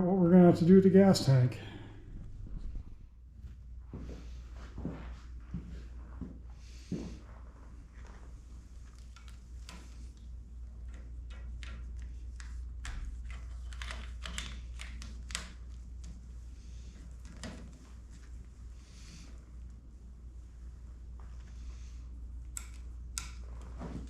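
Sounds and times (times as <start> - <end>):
low hum: 0.0 - 6.6
small parts clicking and rattling: 10.8 - 15.7.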